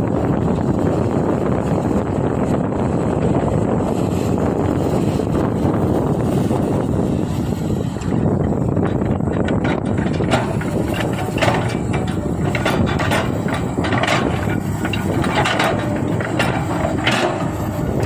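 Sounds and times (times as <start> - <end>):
excavator engine running: 0.0 - 18.0
scraping and knocking: 8.8 - 18.0.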